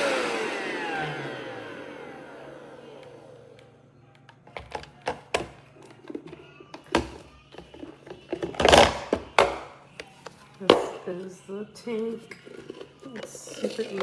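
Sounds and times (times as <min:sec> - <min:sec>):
vacuum motor winding down: 0:00.0 - 0:04.0
clicks and knocks of handling: 0:03.6 - 0:10.9.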